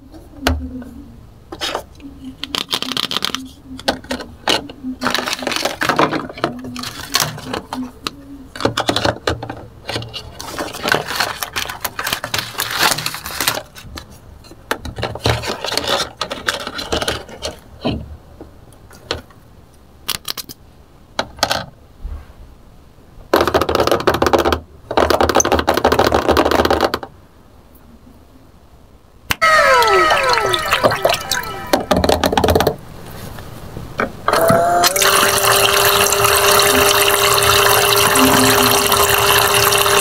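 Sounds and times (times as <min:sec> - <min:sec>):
plastic toy dishes clattering: 0:02.4 - 0:14.1, 0:14.8 - 0:17.6.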